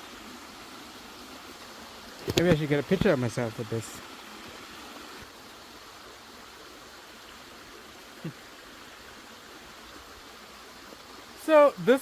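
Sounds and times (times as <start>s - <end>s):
distant waterfall rushing: 0.0s - 12.0s.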